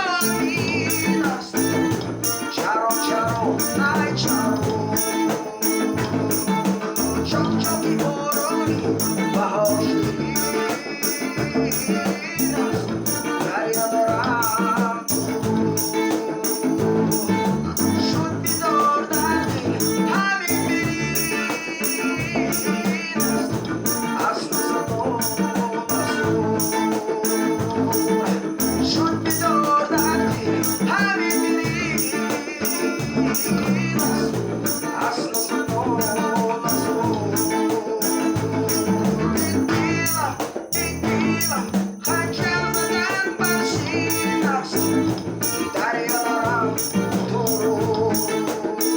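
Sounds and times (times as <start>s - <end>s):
shaker steady beat: 0.0s - 48.9s.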